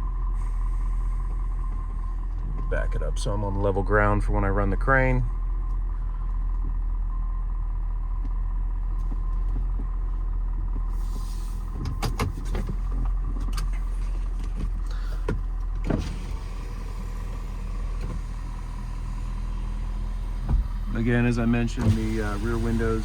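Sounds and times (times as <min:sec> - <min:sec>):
diesel engine rumbling: 0:00.0 - 0:23.0
power window clicks and knocks: 0:11.8 - 0:23.0.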